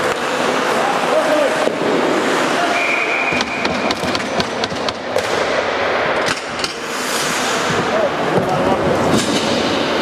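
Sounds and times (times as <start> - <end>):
sticks and puck clacking: 0.0 - 2.0, 3.3 - 7.8
arena noise: 0.0 - 10.0
skates scraping ice: 6.8 - 10.0.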